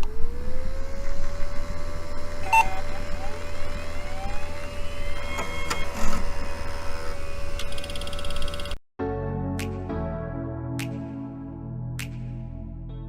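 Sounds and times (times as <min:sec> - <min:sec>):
small motor whining: 0:00.0 - 0:08.8.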